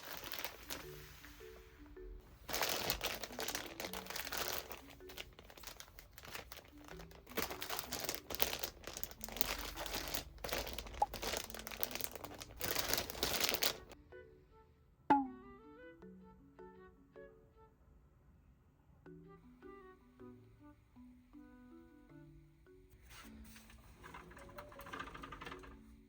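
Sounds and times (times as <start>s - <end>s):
packaging crinkling and rustling: 0.0s - 1.1s, 2.4s - 14.0s
soft background music: 0.0s - 26.0s.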